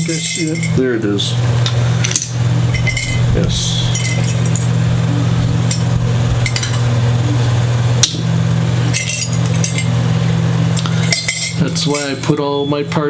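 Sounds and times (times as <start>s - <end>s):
small parts clinking in a cup: 0.0s - 0.8s, 2.0s - 3.2s, 3.9s - 4.7s, 8.9s - 9.9s, 10.8s - 12.3s
steady low hum: 0.0s - 13.0s.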